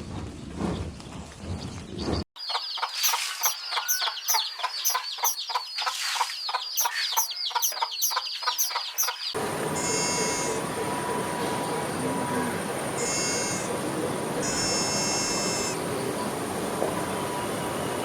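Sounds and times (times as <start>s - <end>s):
chickens calling: 2.4s - 10.9s.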